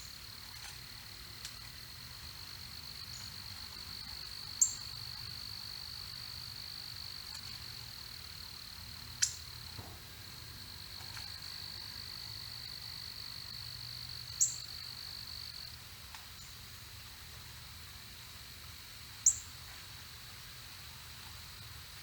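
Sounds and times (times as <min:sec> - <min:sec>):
high-pitched insect trill: 0:01.5 - 0:15.8.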